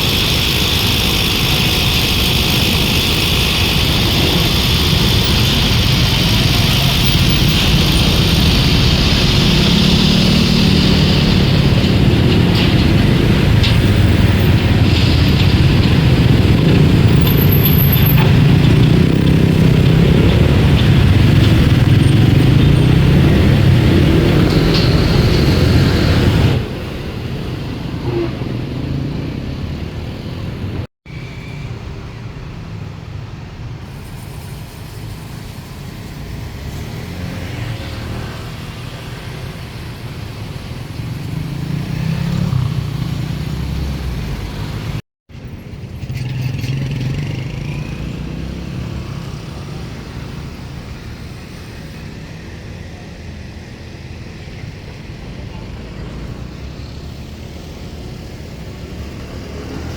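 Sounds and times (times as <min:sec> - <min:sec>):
low engine rumble: 0:00.0 - 0:30.9.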